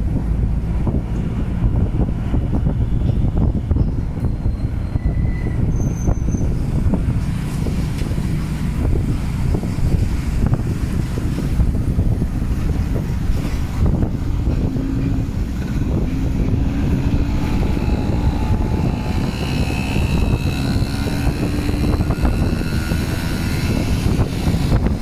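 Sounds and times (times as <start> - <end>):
wind buffeting microphone: 0.0 - 25.0
faint droning tone: 13.6 - 25.0.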